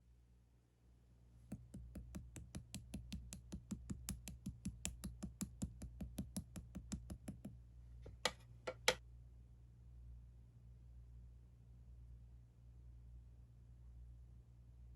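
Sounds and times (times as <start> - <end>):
slime clicking: 1.6 - 7.4.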